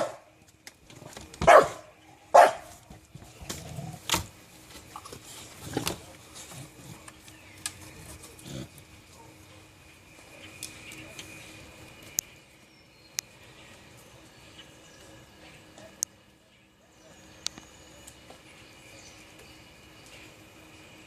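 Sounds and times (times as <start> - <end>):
dogs barking in play: 0.0 - 0.3, 1.4 - 2.9.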